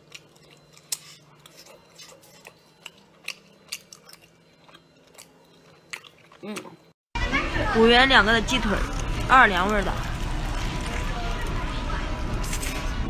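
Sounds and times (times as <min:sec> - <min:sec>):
person chewing with wet smacks: 0:00.0 - 0:06.8.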